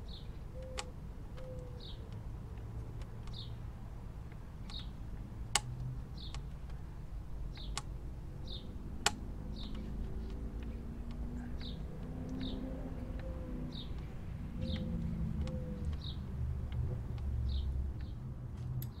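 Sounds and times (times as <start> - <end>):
small bird chirping: 4.6 - 5.0, 6.1 - 6.5, 7.4 - 8.8, 9.4 - 18.2.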